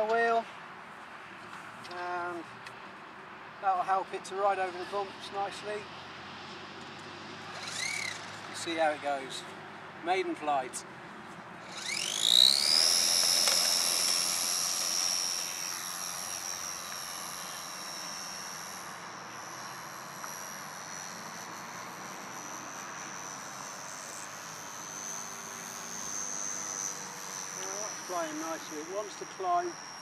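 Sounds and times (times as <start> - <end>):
electric model plane motor whine: 4.5 - 9.1, 11.6 - 30.0.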